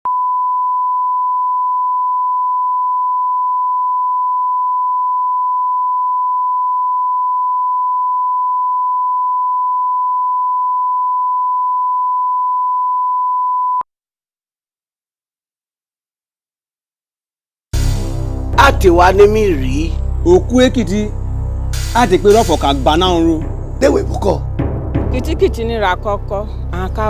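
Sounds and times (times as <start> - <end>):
electronic test tone: 0.1 - 13.9.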